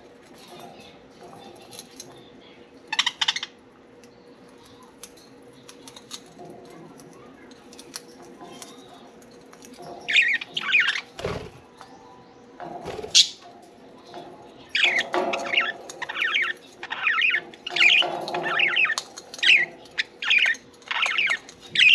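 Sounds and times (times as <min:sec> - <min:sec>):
budgerigars chirping and chattering: 0:02.9 - 0:03.6, 0:07.8 - 0:12.0, 0:12.6 - 0:13.5, 0:14.1 - 0:21.9.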